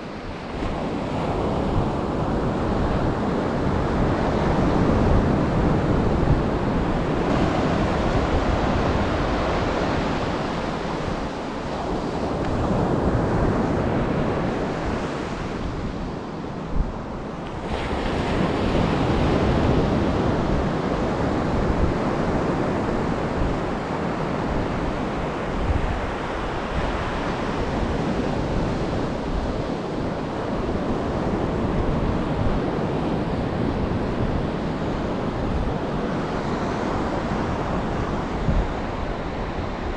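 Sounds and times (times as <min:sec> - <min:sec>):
wind buffeting microphone: 0:00.0 - 0:39.9
surf breaking on beach: 0:00.2 - 0:39.9.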